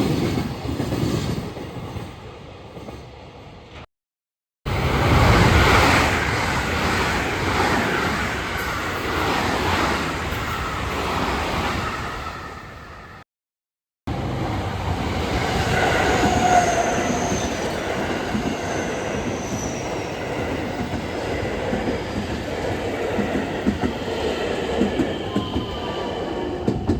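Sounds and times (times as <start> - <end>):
train running on rails: 0.0 - 3.8, 4.7 - 13.2, 14.1 - 26.9
steel wheels squealing: 15.4 - 21.6, 24.6 - 26.9.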